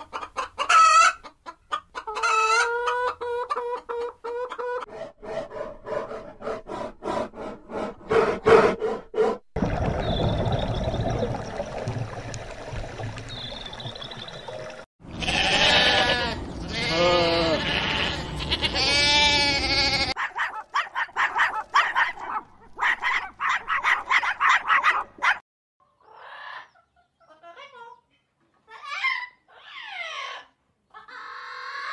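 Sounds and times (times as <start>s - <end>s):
lambs bleating: 15.1s - 20.2s.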